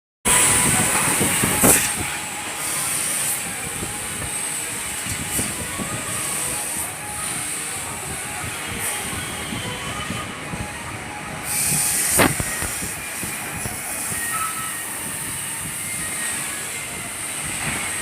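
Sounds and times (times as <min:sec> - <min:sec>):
cutting machine gas hissing: 0:11.4 - 0:18.0.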